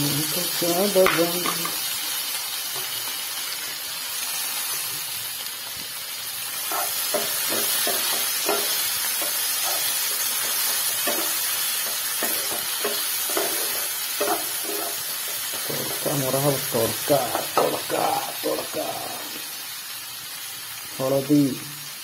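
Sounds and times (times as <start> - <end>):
vegetables sizzling in hot oil: 0.0 - 22.0
wooden spatula scraping pan: 6.7 - 16.2.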